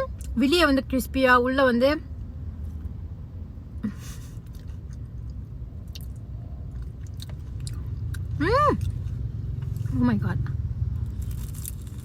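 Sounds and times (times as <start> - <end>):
person chewing crispy pie: 11.0 - 12.0.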